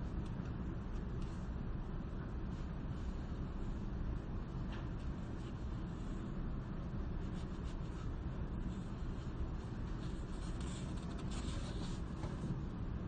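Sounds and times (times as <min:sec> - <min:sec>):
low background rumble: 0:00.0 - 0:13.0
writing scratching on paper: 0:07.2 - 0:12.6.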